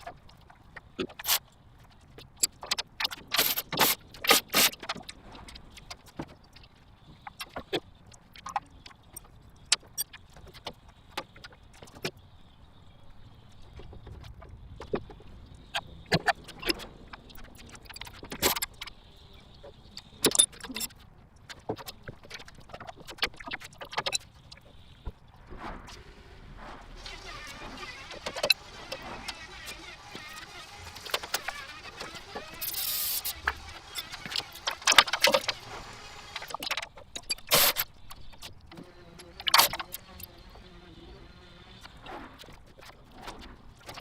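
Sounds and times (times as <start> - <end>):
short bursts of hiss: 3.4 - 4.8, 25.9 - 36.7.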